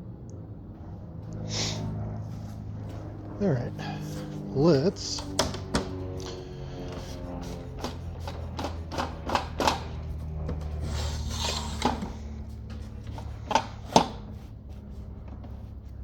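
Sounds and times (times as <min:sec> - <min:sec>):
steady low hum: 0:00.0 - 0:16.0
sharp clicks and knocks: 0:05.2 - 0:06.0, 0:07.8 - 0:10.7
short scraping rasp: 0:10.7 - 0:14.3.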